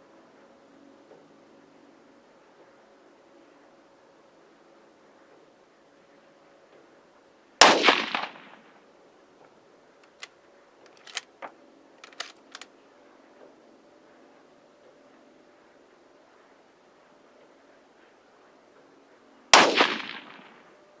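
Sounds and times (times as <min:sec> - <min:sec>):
rifle shot with echo: 0:07.6 - 0:08.6, 0:19.6 - 0:20.6
short sharp clicks: 0:10.0 - 0:10.3, 0:10.9 - 0:11.3, 0:12.0 - 0:12.7.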